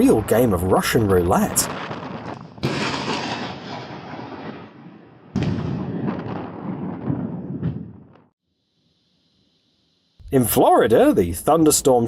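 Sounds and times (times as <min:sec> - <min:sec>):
thunderclap with rumble: 0:00.0 - 0:08.3.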